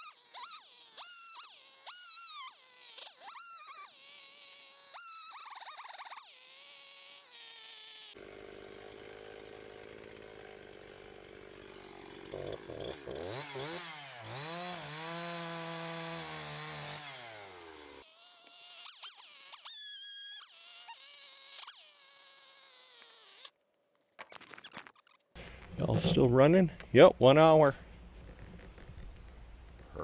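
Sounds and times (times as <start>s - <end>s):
chainsaw idling and revving: 6.4s - 19.6s.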